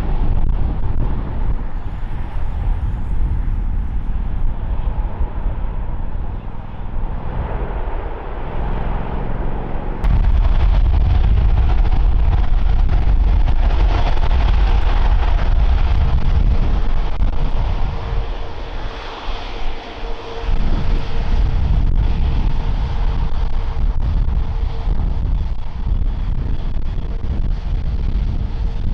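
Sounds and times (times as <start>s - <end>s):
jet engines roaring: 0.0s - 28.9s.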